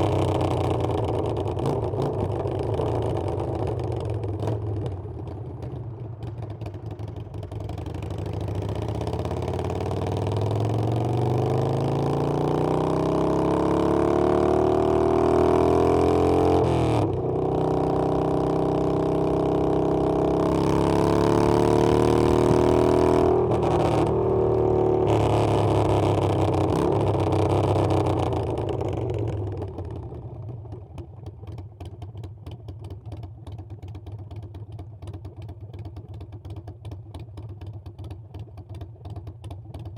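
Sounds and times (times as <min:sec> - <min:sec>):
motorcycle engine accelerating: 0:07.1 - 0:30.6.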